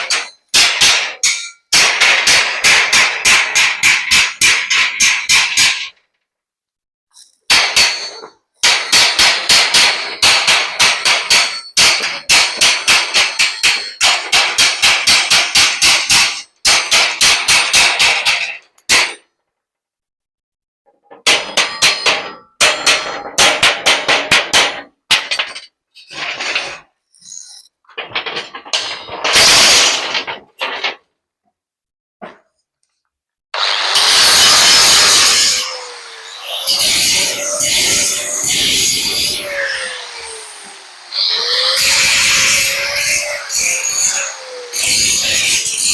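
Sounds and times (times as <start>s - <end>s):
hammer striking metal: 0.0s - 5.9s, 7.5s - 19.2s, 21.2s - 25.7s.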